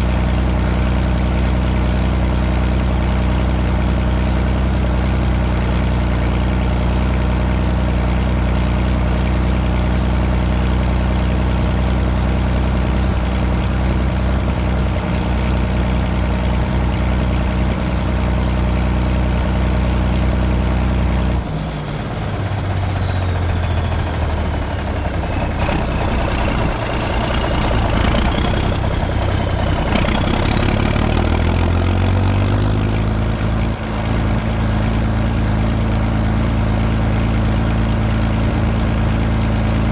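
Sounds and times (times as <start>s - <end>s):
diesel engine running: 0.0s - 39.9s
high turbo whistle: 22.0s - 31.5s.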